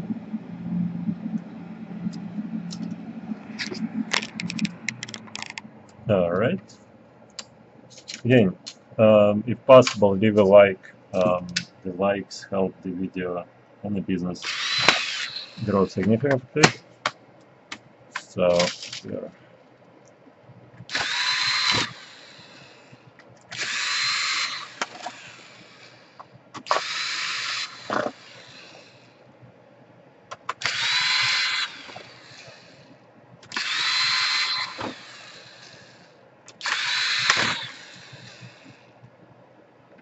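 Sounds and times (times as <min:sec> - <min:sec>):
electric screwdriver motor whine: 0:14.4 - 0:15.7, 0:20.9 - 0:22.9, 0:23.5 - 0:26.0, 0:26.7 - 0:29.0, 0:30.6 - 0:32.8, 0:33.5 - 0:38.8.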